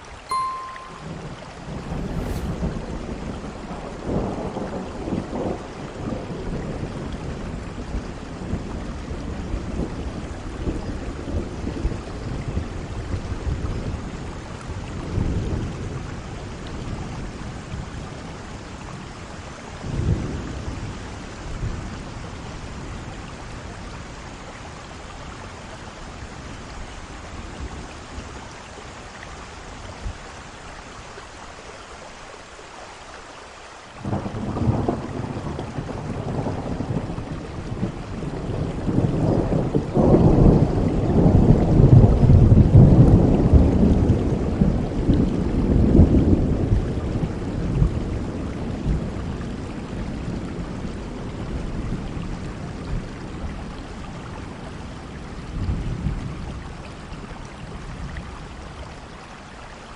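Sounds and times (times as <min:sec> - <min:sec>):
heavy rain falling: 0:00.0 - 0:59.9
thunder rumbling: 0:01.1 - 0:14.2, 0:34.0 - 0:52.1.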